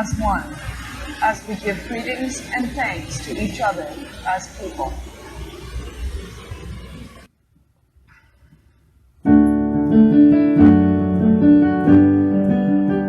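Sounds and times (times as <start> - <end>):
piano playing hymn chords: 9.3 - 13.0.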